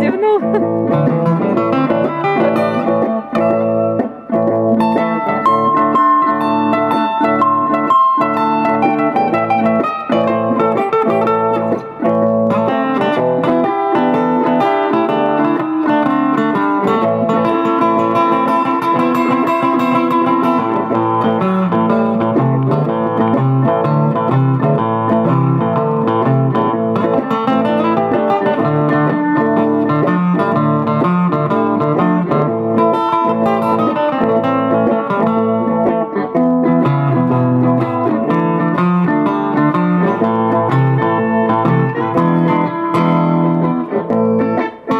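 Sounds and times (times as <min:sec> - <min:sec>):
bass line: 0:00.0 - 0:12.3
blues guitar playing: 0:00.0 - 0:44.9.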